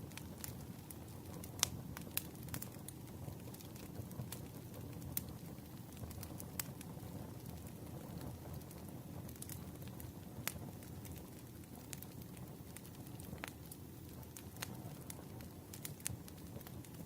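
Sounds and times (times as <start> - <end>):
campfire crackling and popping: 0.0 - 17.0
flames rustling: 0.0 - 17.0.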